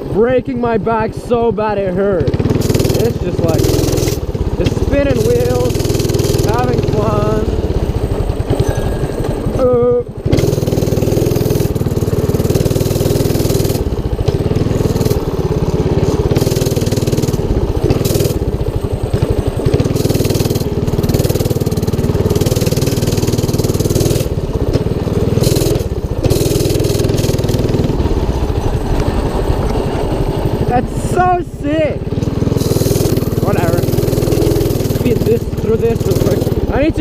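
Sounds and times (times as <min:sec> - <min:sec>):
mini bike engine running: 0:00.0 - 0:37.0.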